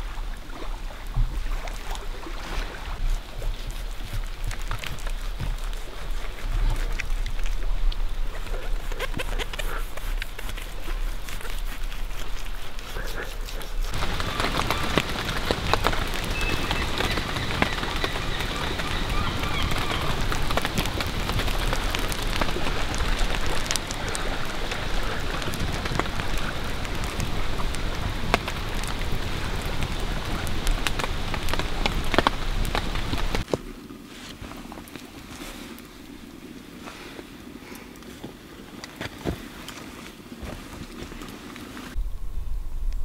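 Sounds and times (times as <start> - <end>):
rain falling on leaves: 3.0 - 13.0, 13.8 - 42.0
raindrops ticking: 13.9 - 33.5.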